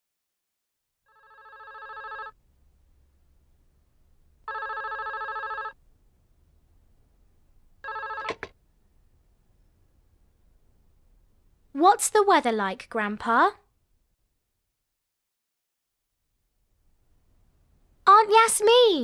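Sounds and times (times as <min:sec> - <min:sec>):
telephone ringing: 0:01.1 - 0:02.4, 0:04.4 - 0:05.8, 0:07.8 - 0:08.6.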